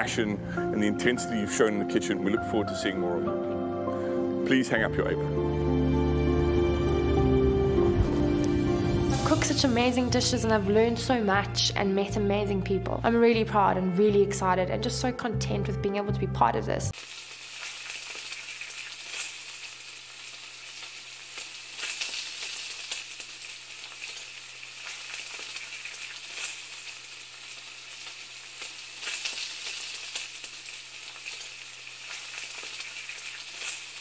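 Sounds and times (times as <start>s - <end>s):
food sizzling in a pan: 16.9s - 34.0s
frying crackles and pops: 16.9s - 34.0s.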